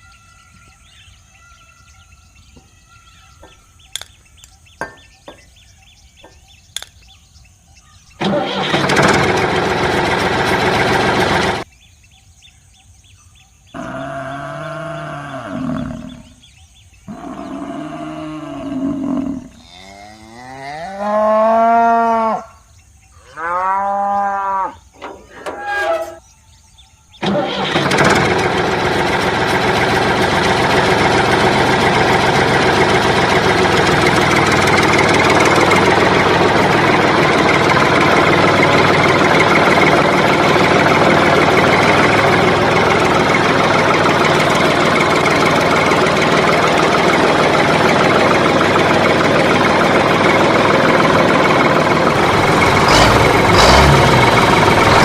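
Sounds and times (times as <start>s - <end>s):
loud knocks: 3.4s - 7.0s
engine running loudly: 8.2s - 11.7s, 27.2s - 55.0s.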